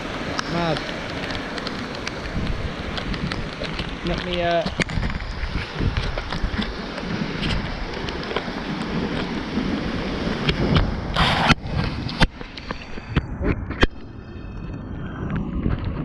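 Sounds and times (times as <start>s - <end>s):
storm wind and rain on microphone: 0.0s - 16.0s.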